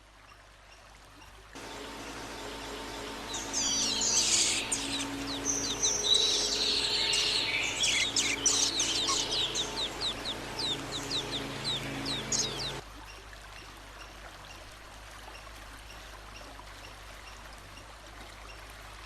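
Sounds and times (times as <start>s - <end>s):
songbird singing: 1.2s - 12.8s.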